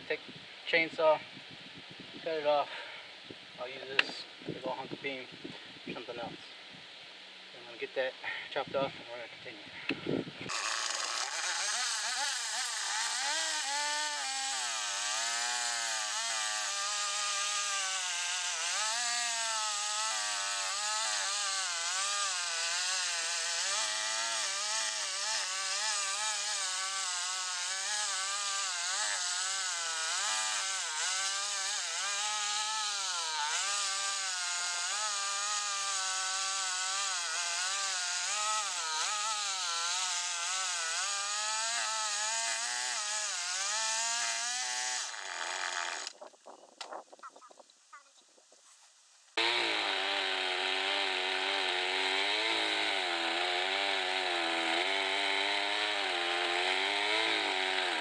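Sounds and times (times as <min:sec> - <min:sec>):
chainsaw cutting through log: 0:10.4 - 0:46.2, 0:49.4 - 0:58.0.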